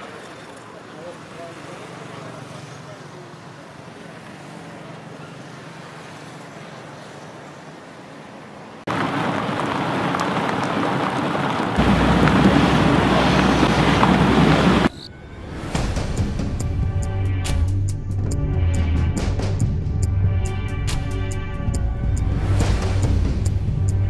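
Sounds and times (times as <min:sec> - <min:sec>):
heavy rain pouring: 0:08.9 - 0:14.9.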